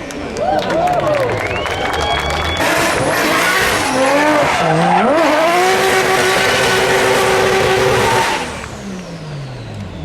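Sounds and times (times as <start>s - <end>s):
car engine revving: 1.5s - 10.0s
tyre squeal: 7.2s - 8.6s.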